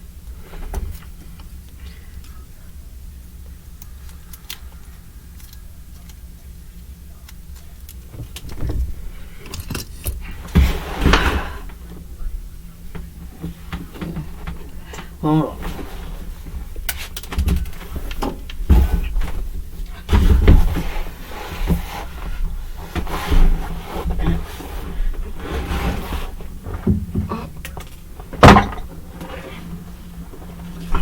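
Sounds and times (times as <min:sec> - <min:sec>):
plastic parts clicking and tapping: 0:03.8 - 0:06.2.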